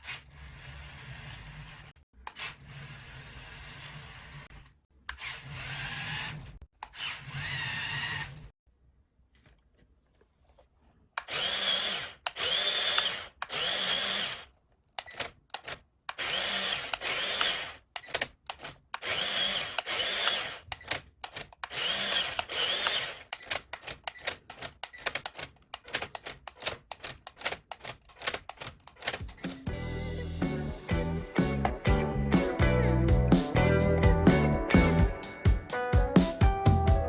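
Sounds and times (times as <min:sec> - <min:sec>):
toy car electric motors whining: 0:00.0 - 0:08.5, 0:11.2 - 0:25.2.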